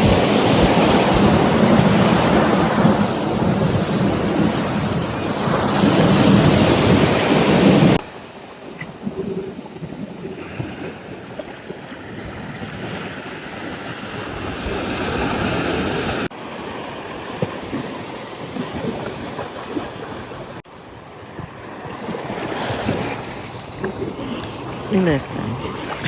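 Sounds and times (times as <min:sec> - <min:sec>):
wind on microphone: 0:00.0 - 0:08.0
ocean surf washing on beach: 0:00.0 - 0:26.0.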